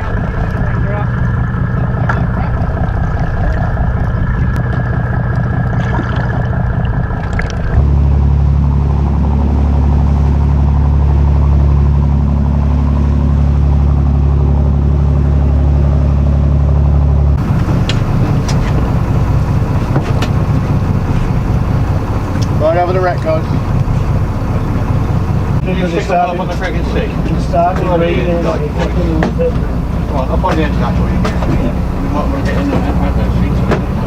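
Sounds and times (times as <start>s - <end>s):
boat engine running: 0.0s - 34.0s.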